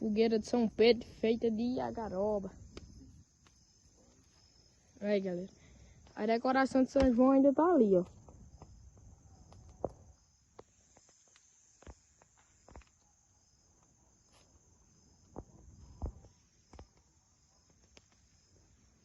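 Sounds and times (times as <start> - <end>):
crickets chirring: 0.0 - 19.0
bonfire crackling and popping: 2.5 - 4.3, 8.0 - 13.0, 15.4 - 18.7.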